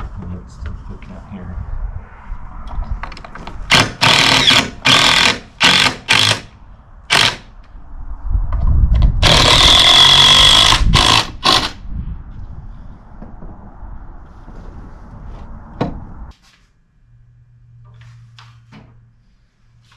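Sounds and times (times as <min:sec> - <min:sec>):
power drill whining: 0:03.7 - 0:06.4, 0:09.2 - 0:11.8.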